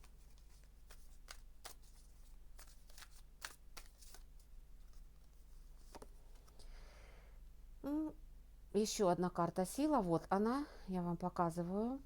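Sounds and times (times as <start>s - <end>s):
cards being shuffled: 0.0s - 6.6s.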